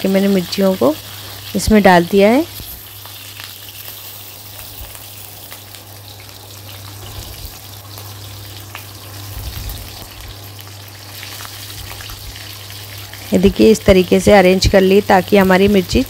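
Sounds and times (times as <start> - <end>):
chillies sizzling in oil: 0.0 - 16.0
oil popping and crackling: 2.3 - 13.4.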